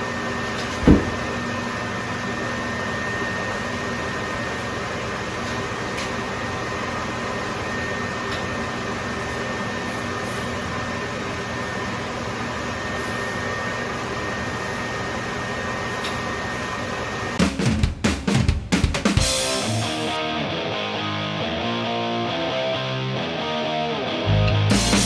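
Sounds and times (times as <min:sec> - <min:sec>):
machine fan and motor hum: 0:00.0 - 0:17.4
drum-heavy music: 0:17.4 - 0:19.8, 0:24.6 - 0:25.0.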